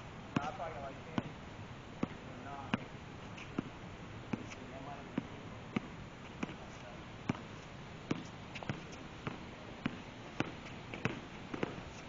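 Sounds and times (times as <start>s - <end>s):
background hiss: 0.0s - 12.0s
basketball bouncing on hard court: 0.4s - 0.6s, 2.0s - 2.9s, 7.3s - 7.5s, 8.1s - 11.8s.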